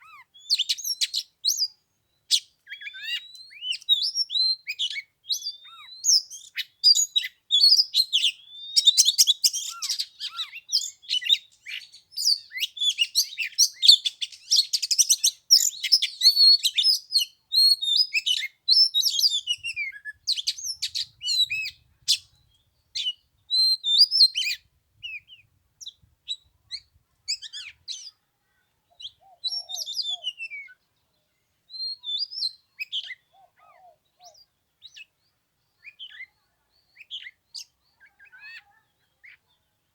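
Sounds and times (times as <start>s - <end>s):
bird singing whistles and trills: 0.0s - 28.2s, 28.9s - 30.8s, 31.7s - 39.4s.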